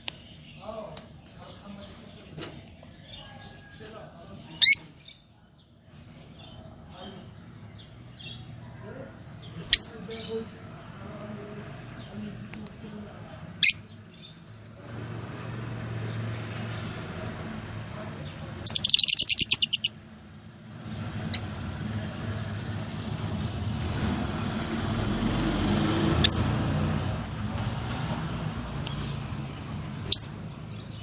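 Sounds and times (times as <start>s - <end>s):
lovebirds chirping: 0.0s - 14.5s, 18.3s - 20.2s, 20.8s - 23.3s, 28.7s - 31.0s.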